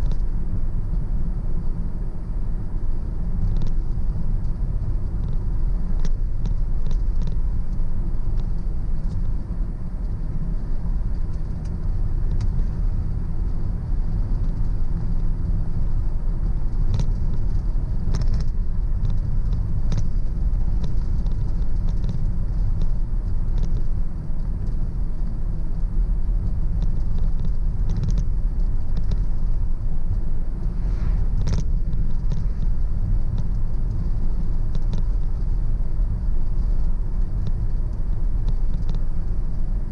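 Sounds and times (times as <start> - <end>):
car road and engine rumble: 0.0 - 39.9
light clicks and rattles: 6.0 - 9.4, 13.4 - 24.9, 26.3 - 30.2, 31.4 - 39.8.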